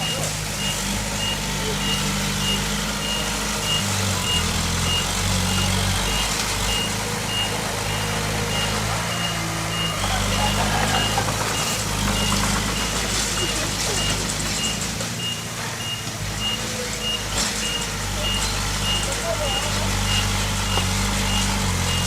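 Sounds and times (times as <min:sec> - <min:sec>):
diesel engine running: 0:00.0 - 0:22.0
reversing alarm beeping: 0:00.0 - 0:22.0.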